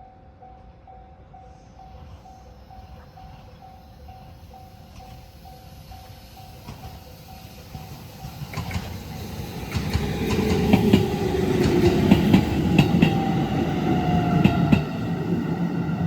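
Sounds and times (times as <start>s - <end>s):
train rumble: 0.0s - 16.0s
train whine falling in pitch: 2.8s - 16.0s
train wheels clacking over rail joints: 5.9s - 15.0s.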